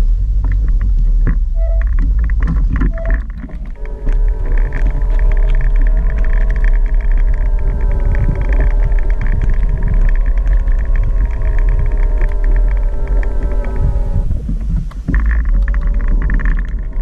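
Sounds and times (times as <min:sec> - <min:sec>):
heavy low rumble: 0:00.0 - 0:17.0
electric scooter motor whine: 0:03.7 - 0:14.5.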